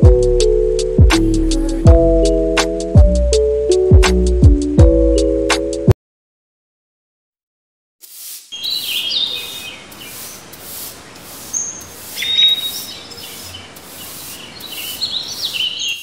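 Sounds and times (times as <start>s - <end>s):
steady hiss: 8.0s - 16.0s
small birds chirping: 8.5s - 16.0s.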